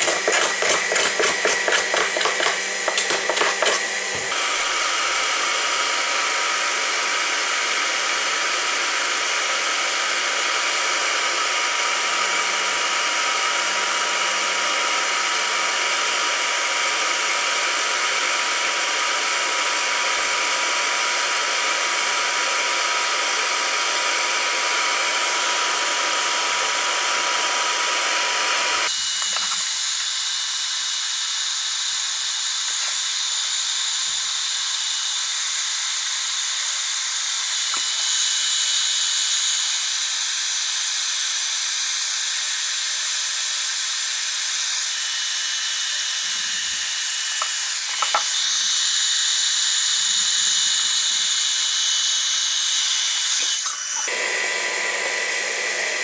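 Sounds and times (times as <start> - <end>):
hot-air welding gun hissing: 28.8 - 54.4.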